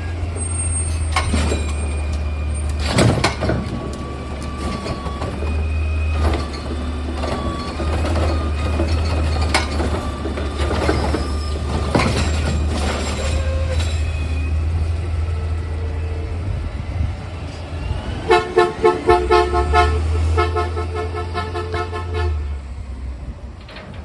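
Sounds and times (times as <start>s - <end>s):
truck engine humming: 0.0s - 23.8s
two-tone vehicle horn toots: 18.2s - 22.6s.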